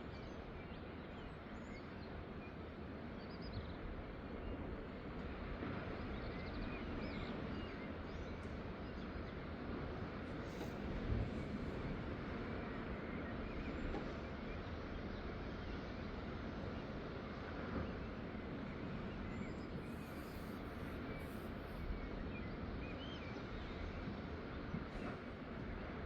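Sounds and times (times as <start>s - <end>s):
faint bird chirps: 19.2s - 23.4s.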